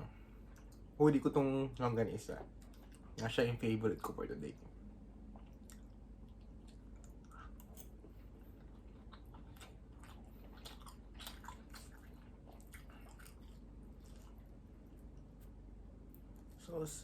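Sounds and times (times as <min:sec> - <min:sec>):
person chewing: 0:05.2 - 0:16.6.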